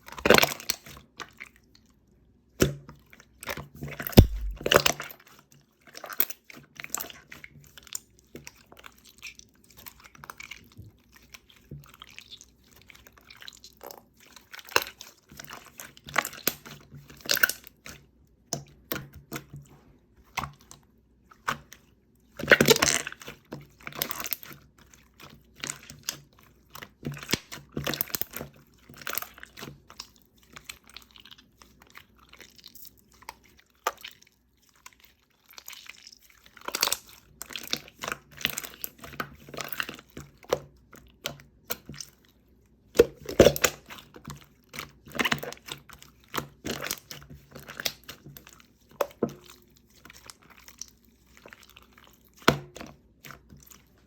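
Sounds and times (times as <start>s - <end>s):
slime squeezed with wet pops: 4.2s - 4.9s, 43.0s - 44.1s.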